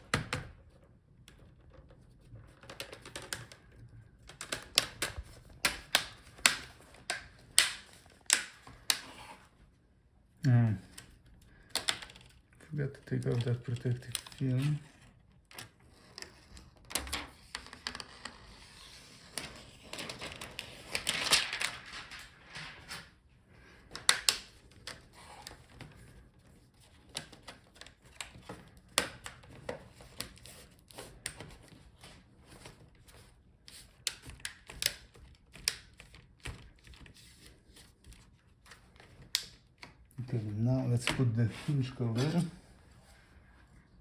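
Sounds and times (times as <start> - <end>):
plastic clicks and snaps: 4.3 - 9.1, 10.9 - 12.4, 23.9 - 25.0, 34.1 - 36.6.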